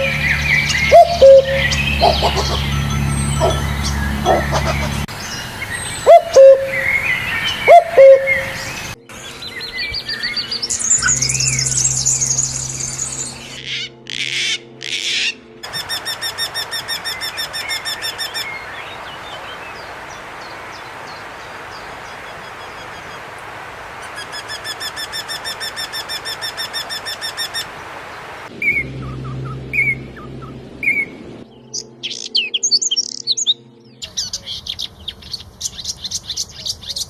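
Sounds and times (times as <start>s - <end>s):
low swooping bird calls: 0.0s - 32.3s
bird warbling song and trills: 0.0s - 37.0s
faint steady hiss: 15.7s - 28.5s.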